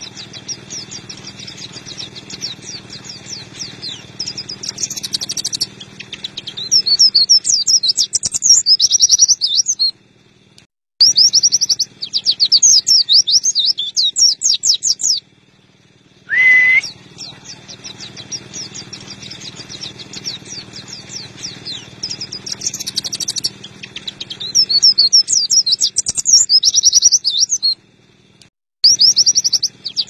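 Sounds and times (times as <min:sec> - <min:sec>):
bird twittering song: 0:00.0 - 0:30.0
rising whistle-like tone: 0:16.2 - 0:17.5.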